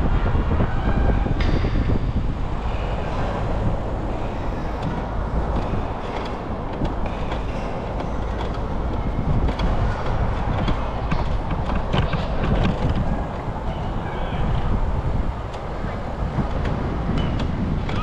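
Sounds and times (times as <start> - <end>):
wind on microphone: 0.0 - 18.0
bicycle rolling on pavement: 1.8 - 18.0
small rattles and clicks: 3.4 - 13.7.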